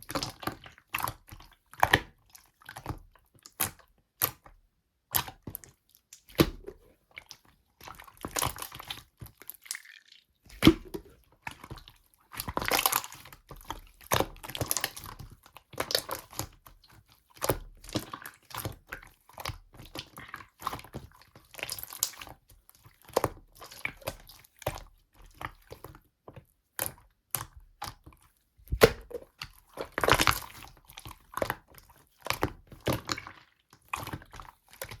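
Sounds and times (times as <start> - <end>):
slime squished by hand: 5.1 - 16.7, 26.8 - 35.0.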